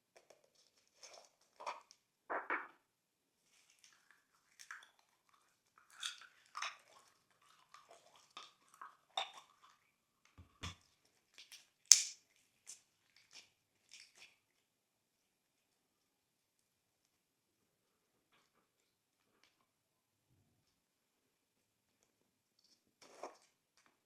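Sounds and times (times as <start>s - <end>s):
slime squishing with sticky pops: 11.4s - 12.2s.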